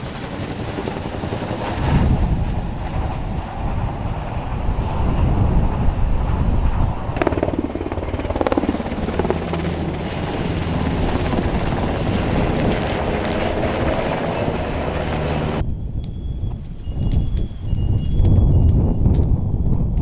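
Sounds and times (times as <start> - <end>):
helicopter flying: 0.0 - 20.0.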